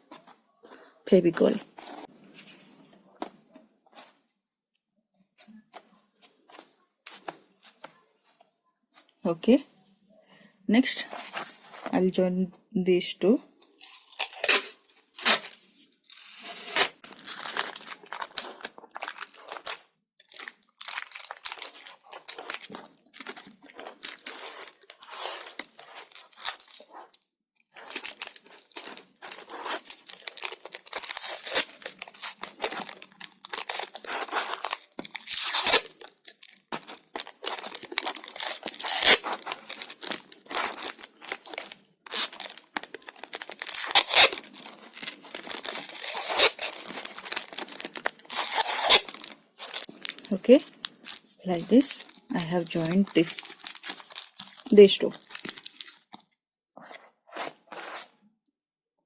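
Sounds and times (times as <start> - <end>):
cardboard and paper rustling: 1.3 - 4.2, 11.0 - 12.0, 15.2 - 27.2, 27.8 - 56.2, 56.8 - 58.1.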